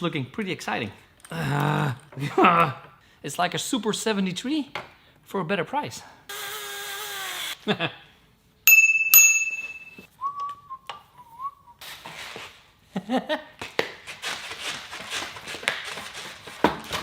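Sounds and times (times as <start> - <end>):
bicycle bell ringing: 8.7 - 10.1
person whistling a tune: 10.1 - 11.8.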